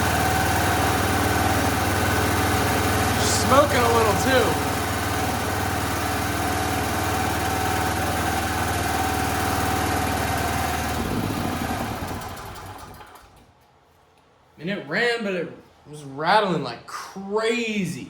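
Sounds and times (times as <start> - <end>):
generator engine running and rattling: 0.0 - 13.5.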